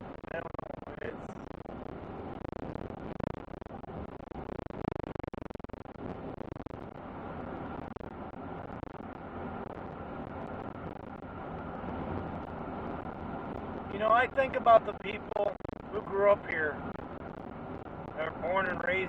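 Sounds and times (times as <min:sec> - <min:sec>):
truck engine and road noise: 0:05.9 - 0:19.0.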